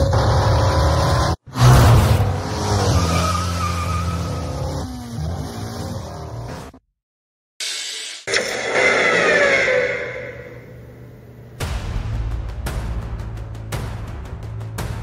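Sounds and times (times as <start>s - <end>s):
loud car engine: 0.0s - 6.7s.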